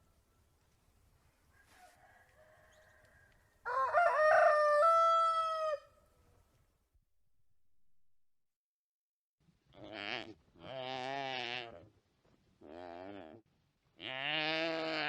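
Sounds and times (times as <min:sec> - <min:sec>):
rooster crowing: 0:01.5 - 0:06.0.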